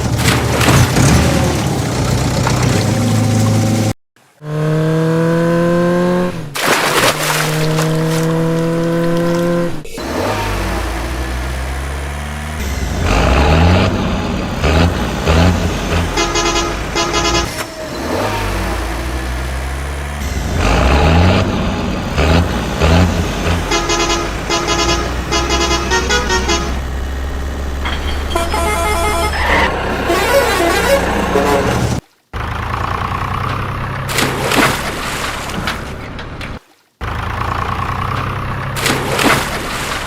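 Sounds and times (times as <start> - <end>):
low motor hum: 7.2 - 34.6
vehicle horn honking: 14.7 - 19.1, 22.9 - 27.1, 27.8 - 32.0.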